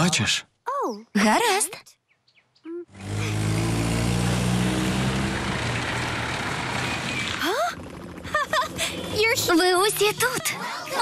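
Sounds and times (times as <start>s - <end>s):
cartoon car engine: 2.7s - 11.0s
road noise rush: 2.9s - 8.2s.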